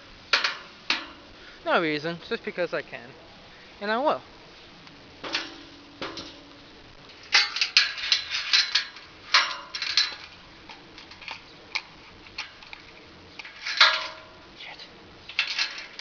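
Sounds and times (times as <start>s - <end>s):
metal objects clanking: 0.3s - 1.3s, 5.2s - 6.5s, 7.1s - 14.4s, 15.3s - 16.0s.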